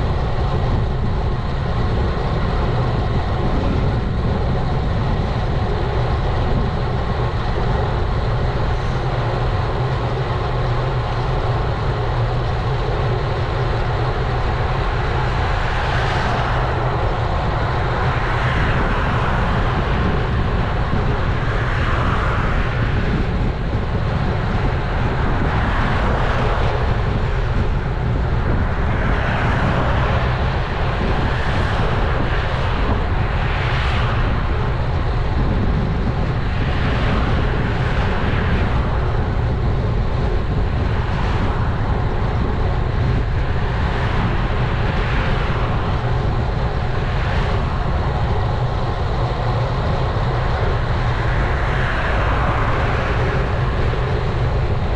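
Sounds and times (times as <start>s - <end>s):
road and traffic hiss: 0.0s - 54.9s
wind buffeting microphone: 0.0s - 54.9s.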